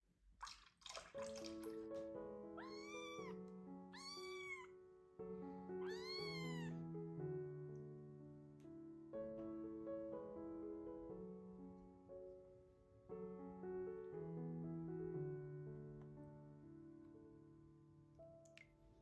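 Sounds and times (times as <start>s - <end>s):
soft piano music: 1.0s - 19.0s
kitten meowing: 2.6s - 4.8s, 5.8s - 6.8s.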